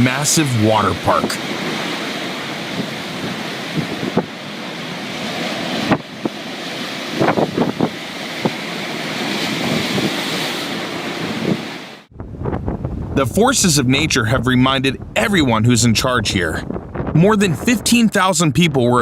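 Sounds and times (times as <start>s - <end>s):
waves crashing: 0.0s - 12.1s
wind buffeting microphone: 1.0s - 19.0s.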